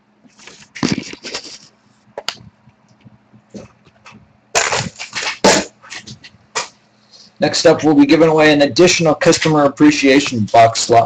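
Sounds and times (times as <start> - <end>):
faint electrical hum: 0.0 - 11.0
rustling and clatter: 0.3 - 6.8.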